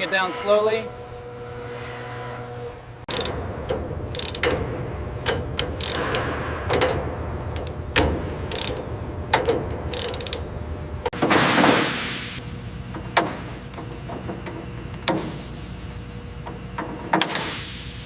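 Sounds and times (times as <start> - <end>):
steady low hum: 0.0 - 18.0
machinery clanking and ratcheting: 3.0 - 11.2.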